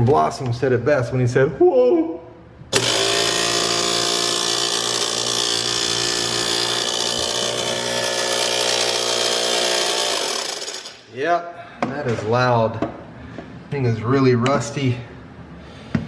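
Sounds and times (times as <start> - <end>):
garbage disposal whining: 2.7 - 11.1.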